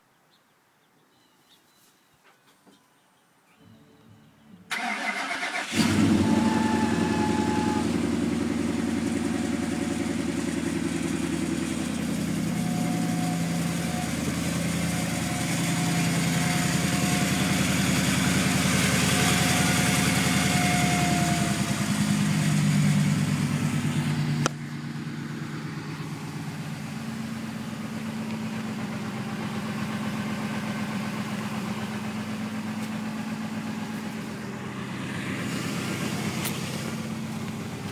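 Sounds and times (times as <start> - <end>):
car engine starting and running: 4.7 - 37.9
high belt whistle: 6.0 - 8.2.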